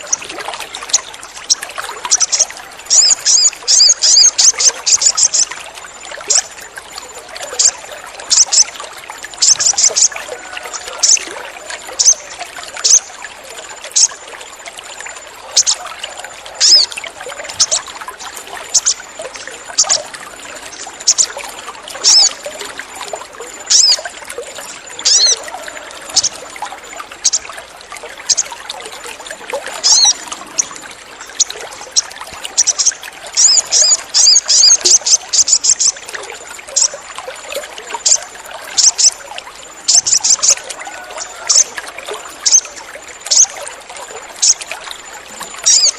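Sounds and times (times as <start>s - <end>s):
trickling water: 0.0s - 45.9s
bird chirping: 0.9s - 5.5s, 16.6s - 16.9s, 18.7s - 19.0s, 20.7s - 21.4s, 22.0s - 22.4s, 23.7s - 24.0s, 25.0s - 25.4s, 29.8s - 36.0s.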